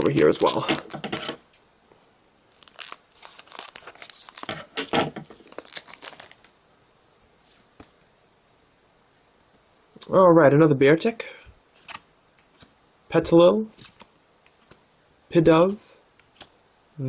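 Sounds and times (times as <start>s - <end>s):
foil wrapper tearing and crinkling: 0.2s - 0.9s, 2.5s - 6.5s.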